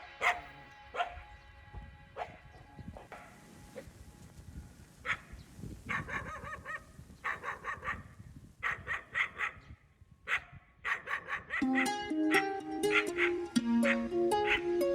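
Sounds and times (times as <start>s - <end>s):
dog barking high-pitched: 0.1s - 1.2s, 5.9s - 9.6s, 10.3s - 14.7s.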